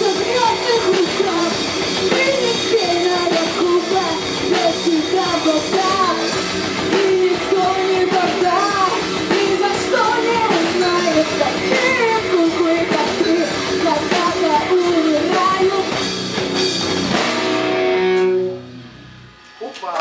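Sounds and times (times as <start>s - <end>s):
person singing: 0.0s - 6.3s, 6.9s - 16.0s
distorted guitars: 0.0s - 20.0s
drum kit: 0.0s - 20.0s.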